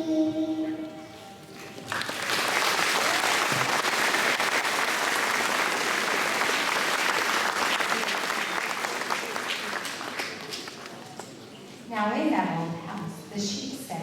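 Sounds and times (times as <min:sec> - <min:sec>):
audience applauding: 0:01.9 - 0:11.2.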